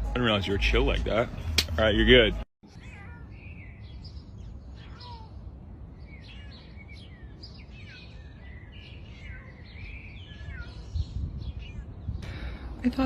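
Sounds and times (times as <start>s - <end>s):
birds chirping and calling: 0.2s - 13.0s.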